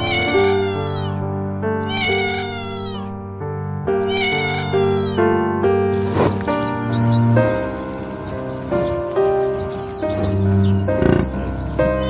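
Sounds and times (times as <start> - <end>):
cat meowing: 0.0 - 3.2, 4.0 - 5.4
background music: 0.0 - 12.0.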